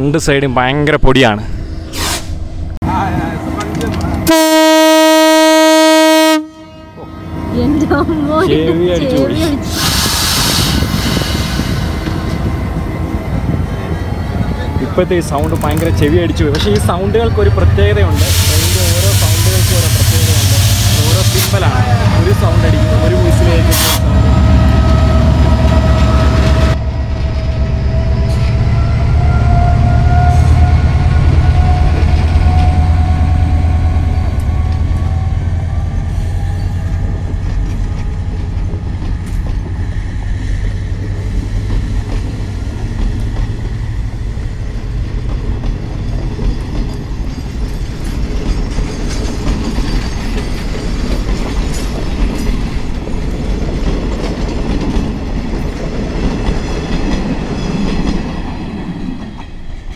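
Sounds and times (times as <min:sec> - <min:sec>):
diesel locomotive rumble and whine: 0:00.0 - 0:59.9
train horn blast: 0:04.2 - 0:07.9, 0:22.3 - 0:26.8, 0:27.4 - 0:36.6
wheels clattering over rails: 0:44.8 - 0:59.9.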